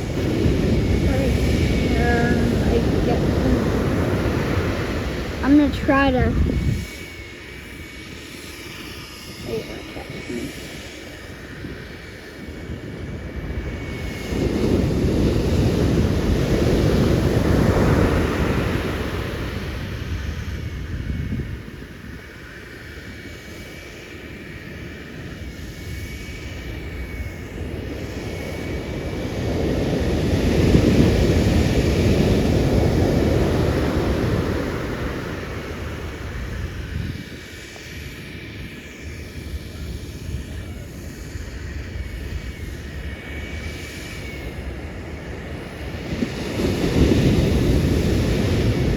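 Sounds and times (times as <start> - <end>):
ocean waves breaking: 0.0 - 6.8, 12.8 - 20.4, 27.7 - 37.0, 44.0 - 48.9.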